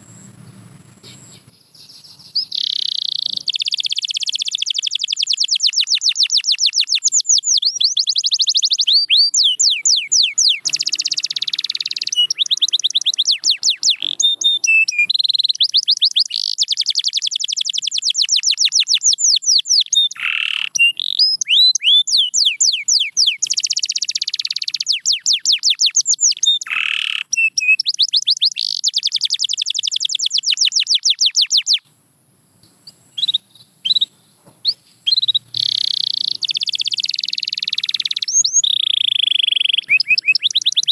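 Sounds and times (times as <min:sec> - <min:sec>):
canary singing: 0:00.0 - 0:31.9, 0:32.9 - 0:40.9.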